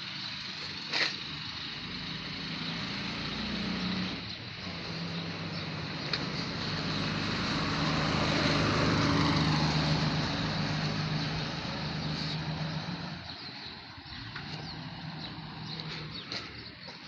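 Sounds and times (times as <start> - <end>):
vehicle engine hum: 0.0 - 17.0
tyre hiss on wet street: 0.1 - 1.4.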